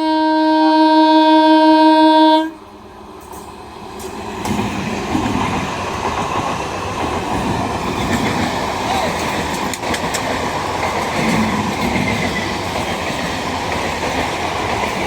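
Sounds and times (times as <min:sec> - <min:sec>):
train horn blast: 0:00.0 - 0:02.7
train wheels clattering on track: 0:03.1 - 0:15.0.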